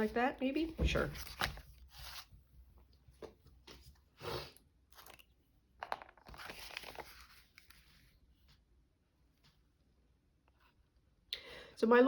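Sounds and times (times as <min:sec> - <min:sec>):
paper rustling: 0:00.8 - 0:02.4, 0:05.9 - 0:08.5.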